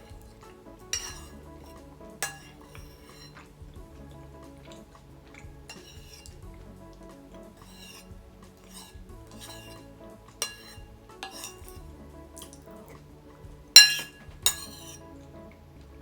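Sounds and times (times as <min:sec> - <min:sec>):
cutlery clinking against a dish: 0:00.0 - 0:03.5, 0:05.7 - 0:06.4, 0:07.4 - 0:11.8, 0:12.4 - 0:13.0, 0:13.8 - 0:15.0
background music: 0:00.0 - 0:16.0.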